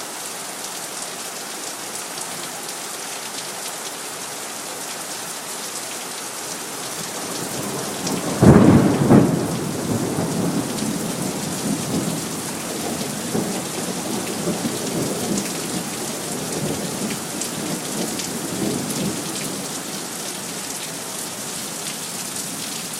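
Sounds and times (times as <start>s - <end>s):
steady rain falling: 0.0s - 22.9s
thunderclap rolling rumble: 8.2s - 15.8s.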